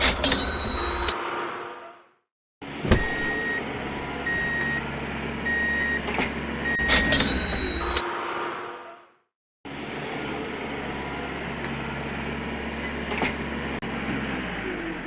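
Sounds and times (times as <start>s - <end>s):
motor vehicle engine rumbling: 2.7s - 8.1s.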